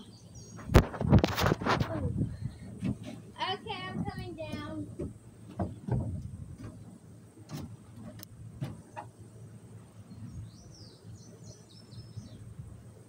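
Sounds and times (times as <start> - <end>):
sharp knocks and clicks: 3.9 - 9.1.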